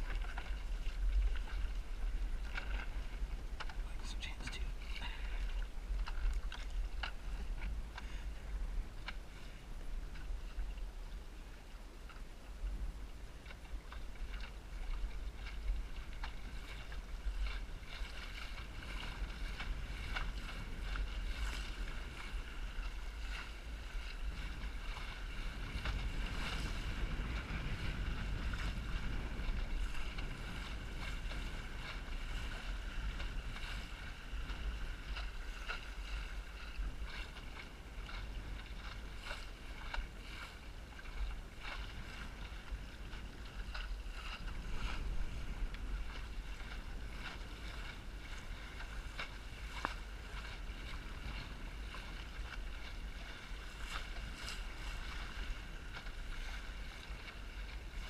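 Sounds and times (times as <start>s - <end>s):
water slapping against hull: 0.0s - 58.0s
wind buffeting microphone: 0.0s - 58.0s.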